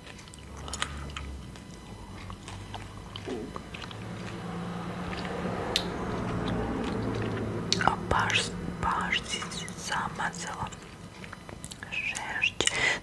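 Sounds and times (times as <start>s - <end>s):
gum chewing mouth clicks: 0.0s - 4.4s, 6.8s - 12.8s
low steady hum: 0.0s - 13.0s.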